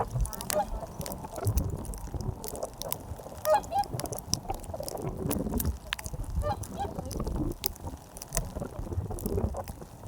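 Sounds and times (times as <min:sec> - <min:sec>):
geese honking: 0:00.4 - 0:00.9, 0:03.4 - 0:03.9, 0:06.4 - 0:07.0.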